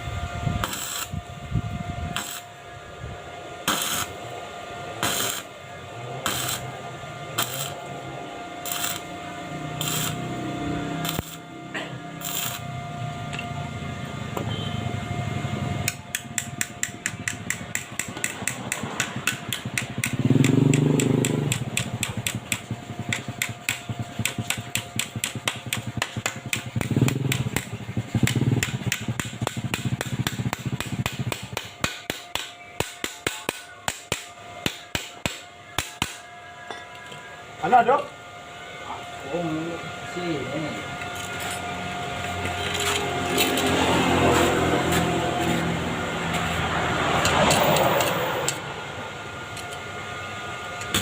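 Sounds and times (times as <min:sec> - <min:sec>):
hammer tapping on metal: 0:15.9 - 0:36.8.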